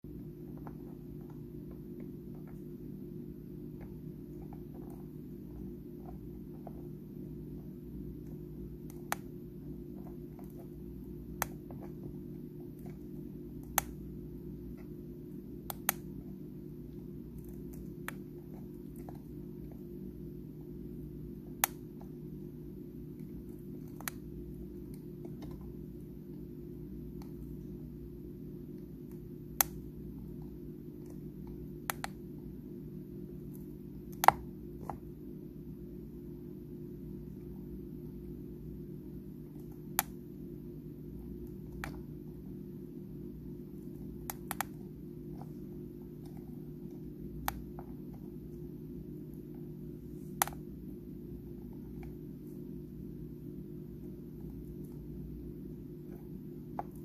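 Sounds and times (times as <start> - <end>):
steady low hum: 0.0 - 57.0
crab crunching food clicks: 10.4 - 11.9, 12.7 - 14.2, 15.6 - 16.2, 21.6 - 22.1, 29.5 - 29.9, 31.0 - 32.3, 34.1 - 35.0, 39.8 - 40.2, 44.2 - 44.8.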